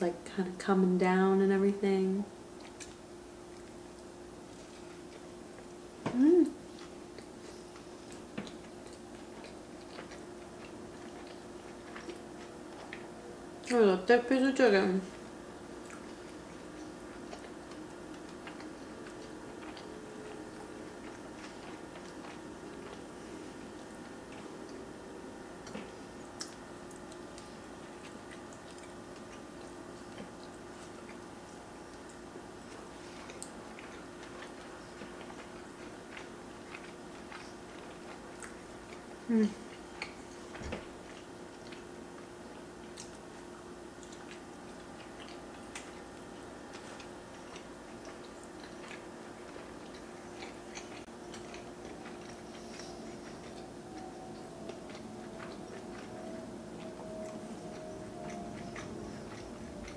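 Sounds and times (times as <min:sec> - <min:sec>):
faint hum: 0:00.0 - 0:59.9
close chewing of chicken: 0:02.4 - 0:13.8, 0:15.1 - 0:59.9
person humming mm: 0:06.0 - 0:06.6, 0:39.3 - 0:39.7.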